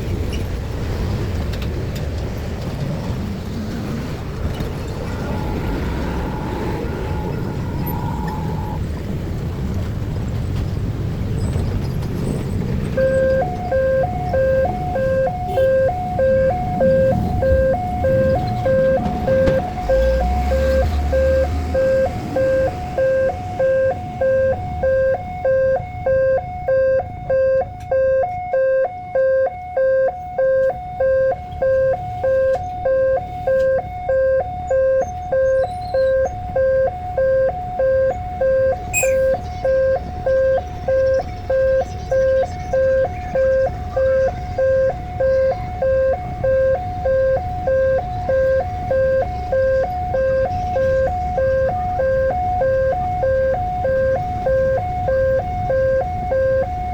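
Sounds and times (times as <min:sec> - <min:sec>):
low rumble: 0:02.5 - 0:10.2
two-tone electronic chime: 0:05.1 - 0:08.8, 0:38.4 - 0:42.2.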